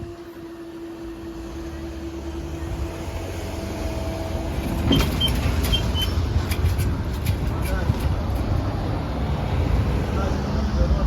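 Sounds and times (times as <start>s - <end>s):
vehicles rumbling: 0.0s - 11.0s
clunks: 4.6s - 8.6s.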